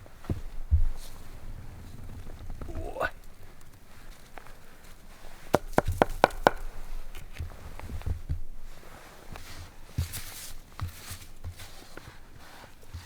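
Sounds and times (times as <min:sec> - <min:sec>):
soft low thumps: 0:00.0 - 0:03.6, 0:05.6 - 0:08.9
shuffling: 0:00.0 - 0:13.0
sharp knocks: 0:05.5 - 0:06.6.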